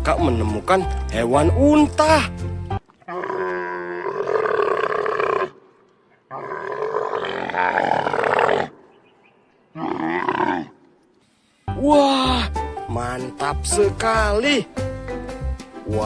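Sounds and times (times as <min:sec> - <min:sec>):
camel grunting calls: 0:03.1 - 0:09.0, 0:09.7 - 0:10.9.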